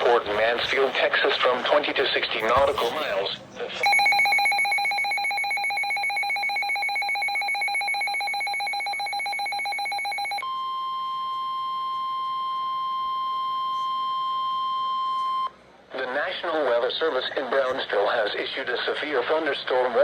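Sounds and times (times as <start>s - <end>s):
steady single-pitch warning tone: 3.8s - 15.6s.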